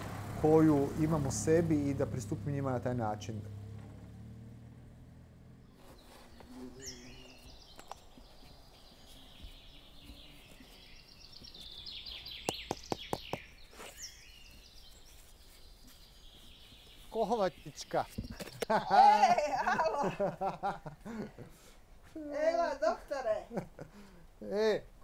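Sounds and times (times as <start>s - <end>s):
car engine hum: 0.0s - 8.1s
songbirds chirping and trilling: 0.0s - 25.0s.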